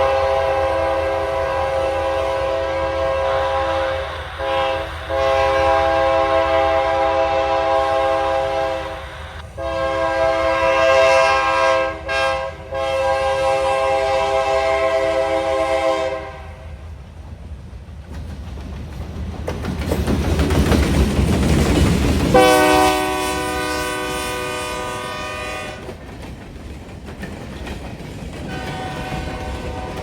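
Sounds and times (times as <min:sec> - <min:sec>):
locomotive rumble: 0:00.0 - 0:11.1, 0:17.0 - 0:30.0
locomotive horn: 0:00.0 - 0:16.6, 0:22.4 - 0:26.0, 0:28.5 - 0:30.0
train wheels clattering: 0:17.1 - 0:30.0.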